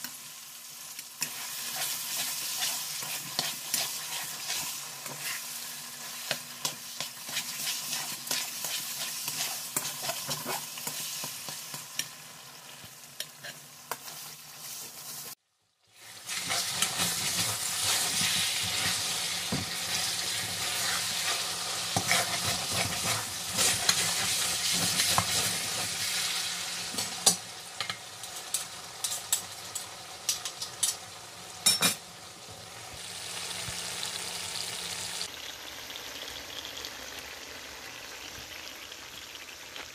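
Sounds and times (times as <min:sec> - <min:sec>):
halwa sizzling in oil: 0:00.0 - 0:39.9
spatula scraping metal pan: 0:01.2 - 0:05.5, 0:07.0 - 0:11.0.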